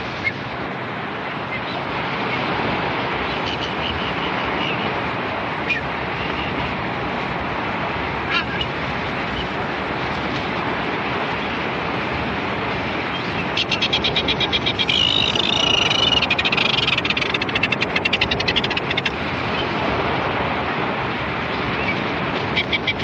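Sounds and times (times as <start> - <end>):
steady rushing noise: 0.0 - 23.0
bird shrill rattling call: 13.2 - 19.2.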